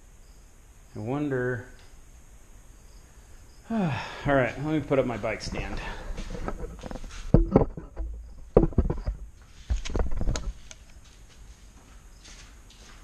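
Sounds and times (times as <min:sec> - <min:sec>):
quiet handling: 0:04.2 - 0:13.0
bike stand clanking and knocking: 0:06.3 - 0:09.2.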